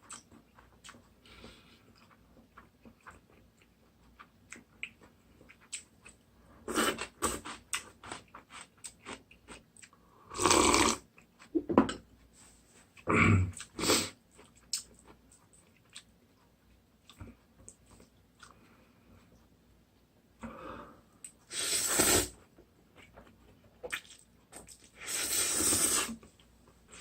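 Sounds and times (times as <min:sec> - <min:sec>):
wet chewing and mouth clicks: 0:00.0 - 0:06.2, 0:13.6 - 0:18.6, 0:22.9 - 0:25.0
noodle slurps: 0:10.4 - 0:11.0, 0:21.5 - 0:22.4, 0:25.0 - 0:26.2.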